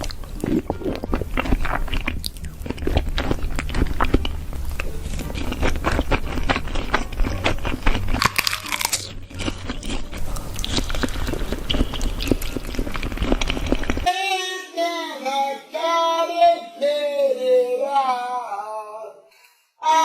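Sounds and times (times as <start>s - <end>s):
crunchy food chewing: 0.0s - 14.1s
person singing: 14.1s - 20.0s.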